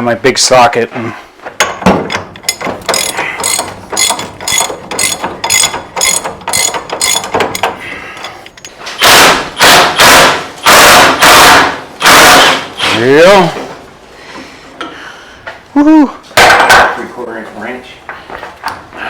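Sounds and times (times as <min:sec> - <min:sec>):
ratchet wrench clicking: 0:02.5 - 0:07.7
harsh bursts of noise: 0:09.0 - 0:13.5.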